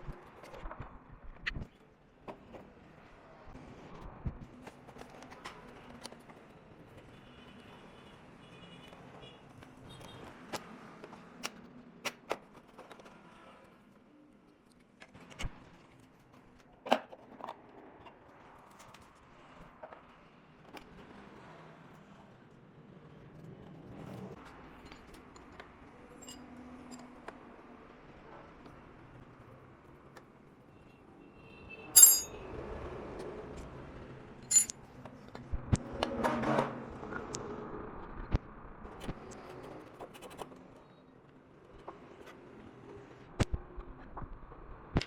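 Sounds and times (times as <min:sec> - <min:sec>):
objects clicking and knocking: 0:32.0 - 0:32.4, 0:34.5 - 0:34.7.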